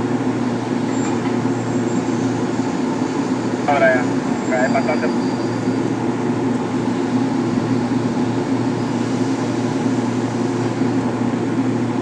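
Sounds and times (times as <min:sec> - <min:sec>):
heavy machinery engine drone: 0:00.0 - 0:12.0.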